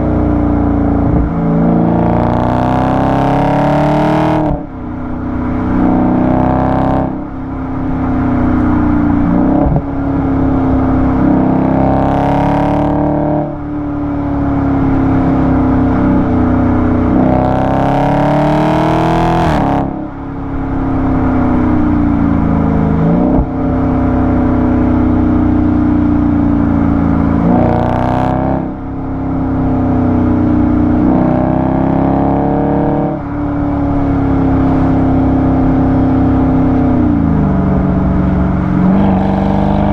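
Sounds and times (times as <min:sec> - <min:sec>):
car exhaust accelerating through gears: 0:00.0 - 0:39.9.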